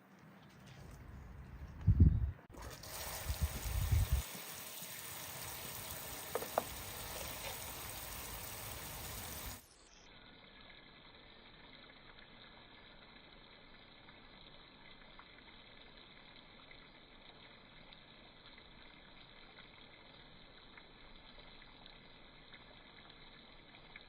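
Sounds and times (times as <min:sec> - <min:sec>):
water running: 0:02.5 - 0:09.7.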